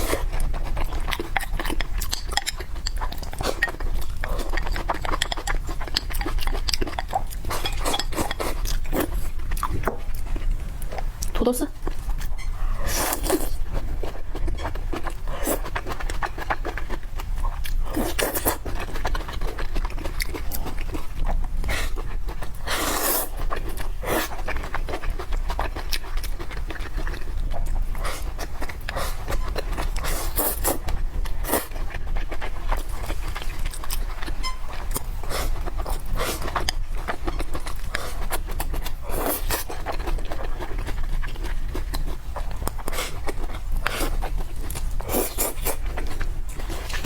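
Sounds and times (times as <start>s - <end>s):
noodle slurp: 30.0s - 30.8s.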